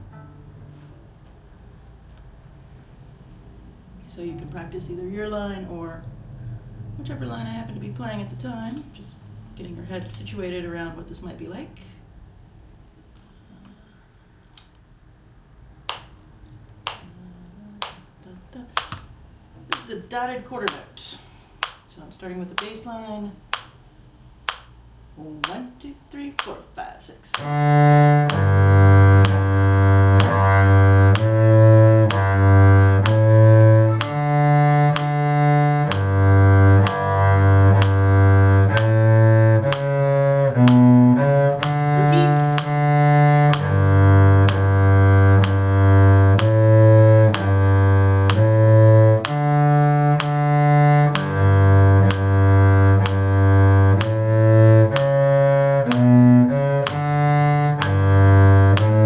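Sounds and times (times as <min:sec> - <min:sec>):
low bass notes like cello: 0:00.0 - 0:01.2, 0:27.3 - 0:59.0.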